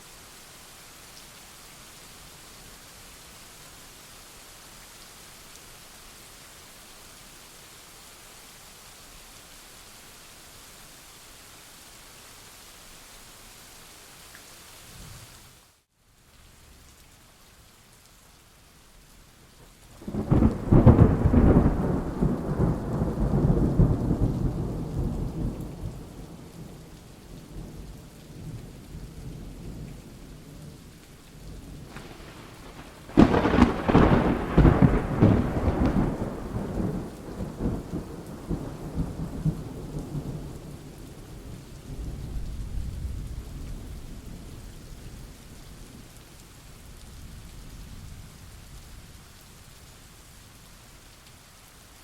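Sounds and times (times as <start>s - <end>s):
steady rain: 0.0s - 52.0s
thunder rumbling: 20.0s - 26.8s, 31.8s - 43.9s.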